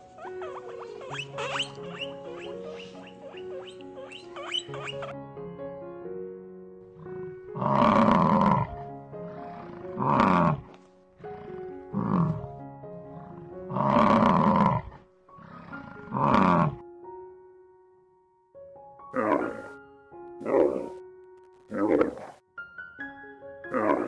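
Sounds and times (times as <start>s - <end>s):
soft background music: 0.0s - 24.0s
large animal roaring: 6.9s - 16.8s, 19.2s - 19.7s, 20.4s - 21.0s, 21.7s - 22.4s, 23.7s - 24.0s.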